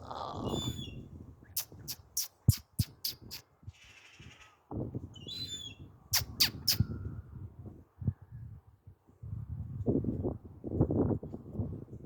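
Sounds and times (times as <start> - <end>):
seagull squeaky call: 0.4 - 1.0, 5.2 - 6.8.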